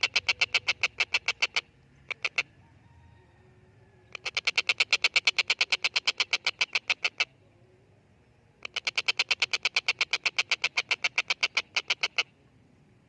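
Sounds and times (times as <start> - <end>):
kingfisher harsh rapid calls: 0.0 - 2.5, 4.1 - 7.3, 8.6 - 12.3.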